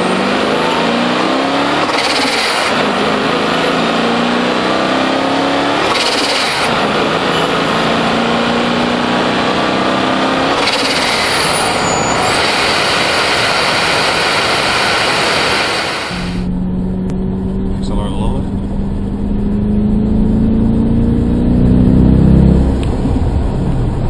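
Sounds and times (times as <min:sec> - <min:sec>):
car engine accelerating: 0:00.0 - 0:24.0
wind rush: 0:10.6 - 0:16.5.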